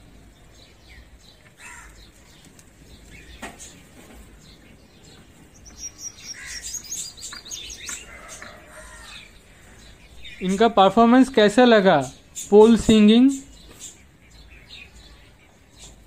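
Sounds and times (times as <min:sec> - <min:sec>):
small bird chirping: 0:00.0 - 0:16.0.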